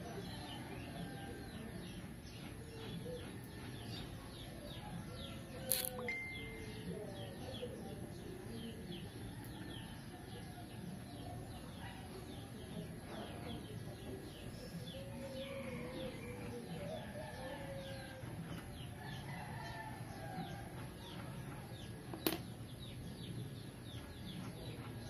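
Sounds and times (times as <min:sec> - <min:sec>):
birds chirping: 0:00.0 - 0:25.0
sharp click: 0:05.7 - 0:06.1.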